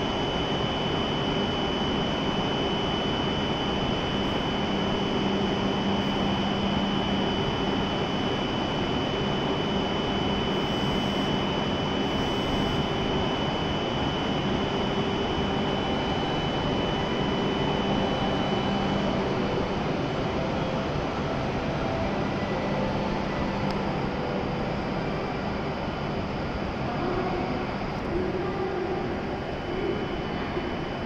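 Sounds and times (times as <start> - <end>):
equipment fans rushing: 0.0 - 31.0
thin high whine: 0.0 - 31.0.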